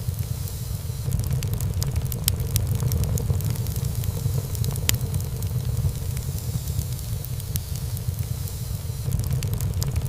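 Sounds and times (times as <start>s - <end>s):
burning wood crackling: 0.0s - 10.0s
flames rumbling: 0.0s - 10.0s.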